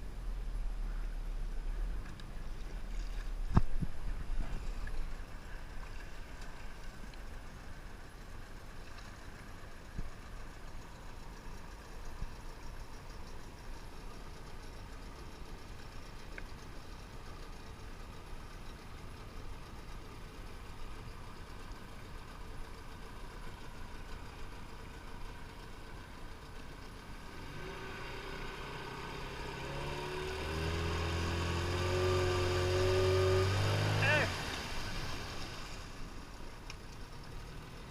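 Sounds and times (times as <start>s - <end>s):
outboard boat motor running: 0.1s - 37.9s.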